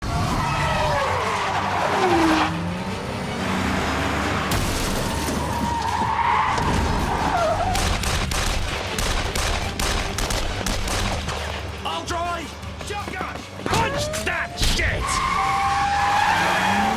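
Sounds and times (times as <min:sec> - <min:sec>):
tyres skidding: 0:00.0 - 0:07.9, 0:11.3 - 0:16.9
car engine: 0:00.0 - 0:08.0, 0:13.4 - 0:16.9
rapid sharp cracks: 0:07.7 - 0:11.5.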